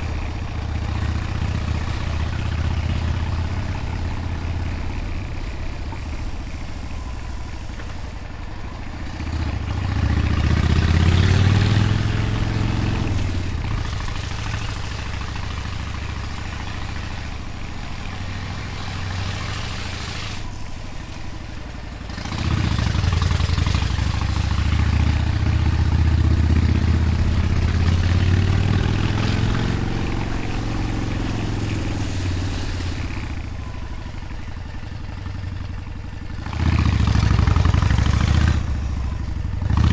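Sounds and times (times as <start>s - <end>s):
motorcycle engine revving: 0.0s - 8.1s, 8.8s - 39.9s.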